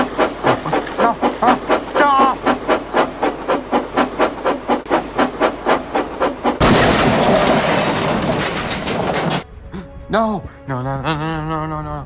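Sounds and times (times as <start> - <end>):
steam locomotive chuffing: 0.0 - 9.4
train crashing: 0.0 - 9.5.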